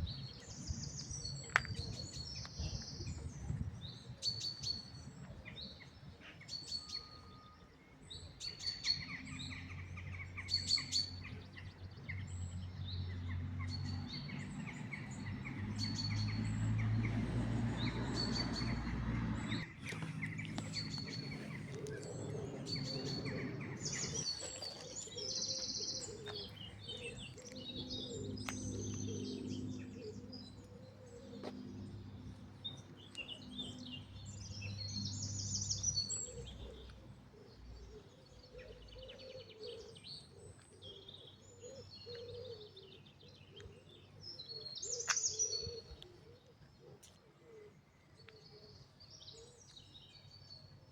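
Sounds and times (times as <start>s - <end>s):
bird chirping: 0.0s - 50.8s
birds calling in varied notes: 12.9s - 50.5s.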